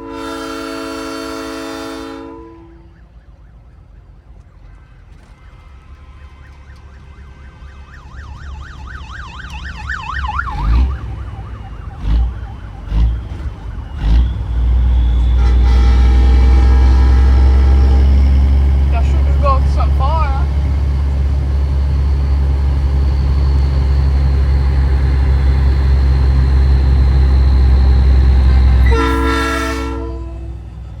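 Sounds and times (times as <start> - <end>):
long air horn blast: 0.0 - 2.8, 15.0 - 18.2, 28.8 - 30.6
short loud horn blasts: 0.0 - 2.8, 14.8 - 18.1, 28.8 - 30.6
siren wailing and yelping: 6.7 - 14.2.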